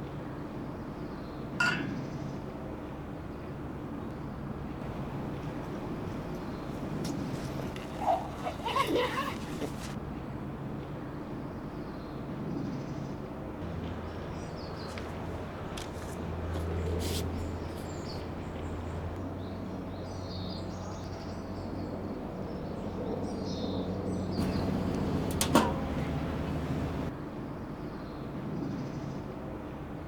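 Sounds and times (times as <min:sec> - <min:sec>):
small birds chirping: 0:04.9 - 0:10.0, 0:23.3 - 0:27.1.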